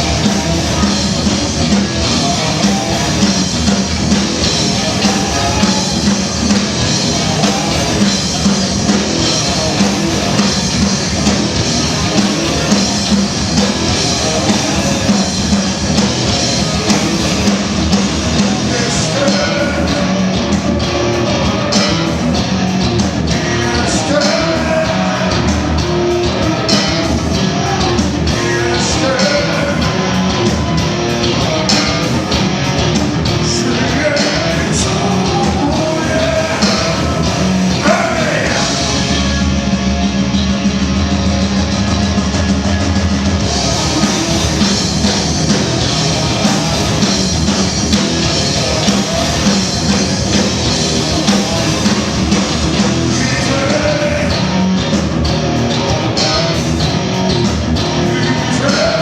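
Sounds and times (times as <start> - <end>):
drums: 0.0 - 59.0
electric guitars: 0.0 - 59.0
person singing: 4.5 - 10.5, 16.5 - 22.2, 23.2 - 39.2, 51.0 - 54.8, 57.9 - 59.0.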